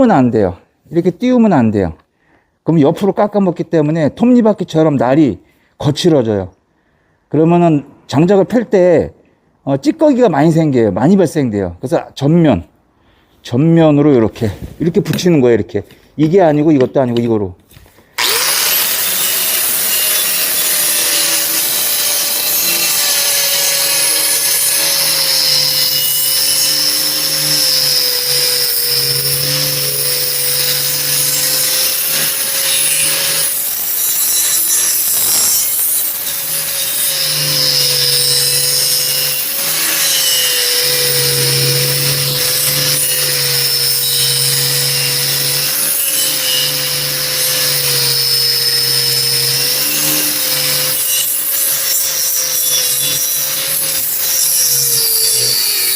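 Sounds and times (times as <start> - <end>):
abrasive disc rasping on steel: 18.2 - 55.9
angle grinder motor whine: 18.2 - 55.9.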